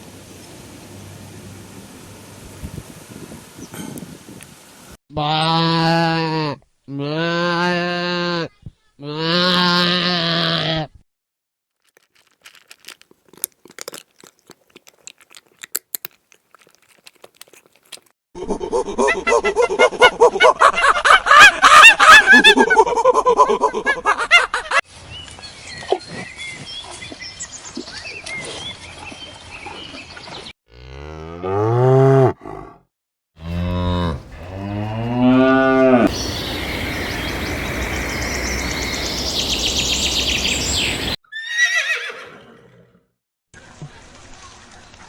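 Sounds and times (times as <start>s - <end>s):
cow mooing: 5.2s - 8.4s, 30.7s - 32.8s, 33.4s - 36.2s
steady noise: 36.1s - 41.2s.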